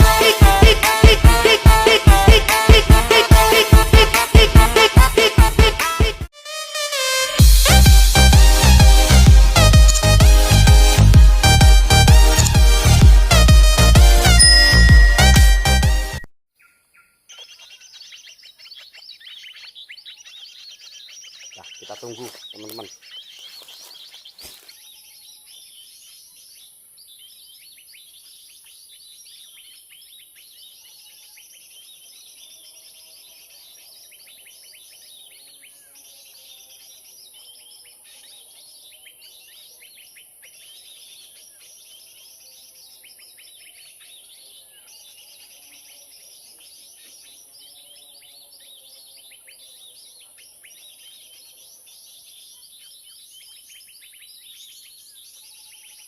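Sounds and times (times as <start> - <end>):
small birds chirping: 9.6 - 11.2, 16.6 - 56.0.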